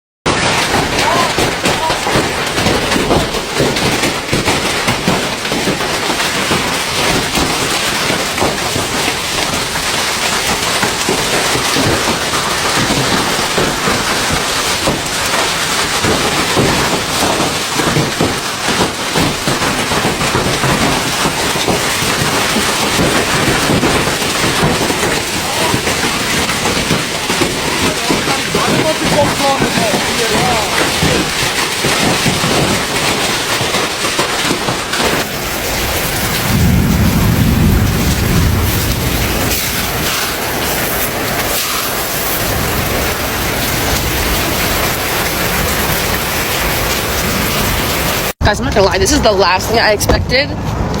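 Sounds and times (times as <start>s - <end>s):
hailstones pelting down: 0.3s - 51.0s.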